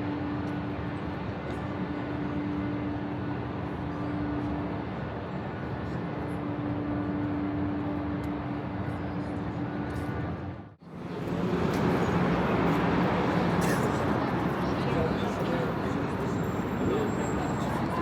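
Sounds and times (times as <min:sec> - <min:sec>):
street traffic noise: 0:00.0 - 0:18.0.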